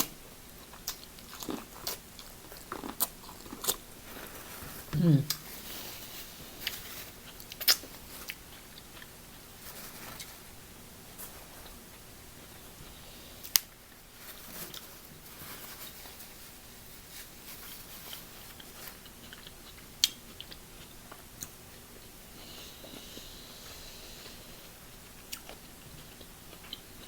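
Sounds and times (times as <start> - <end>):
person chewing seafood: 0.0 - 4.4, 5.2 - 9.5, 18.1 - 21.6, 22.9 - 27.0.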